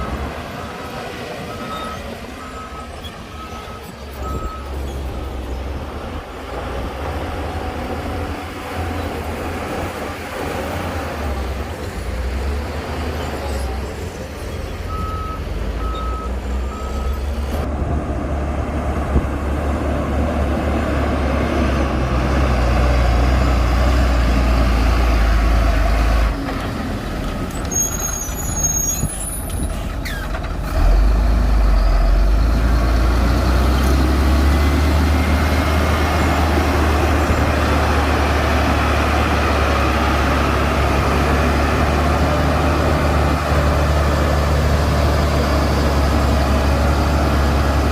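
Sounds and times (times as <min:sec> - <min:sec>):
heavy diesel machinery rumbling: 0:00.0 - 0:47.9
reversing alarm beeps: 0:01.5 - 0:04.8.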